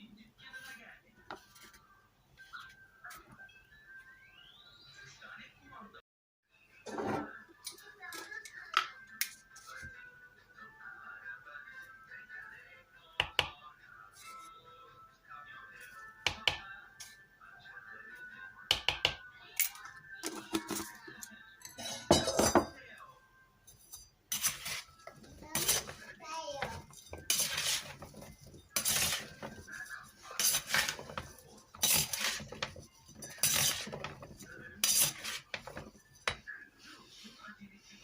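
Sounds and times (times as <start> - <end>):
cutlery clinking on dishes: 18.8 - 22.8, 23.7 - 36.4.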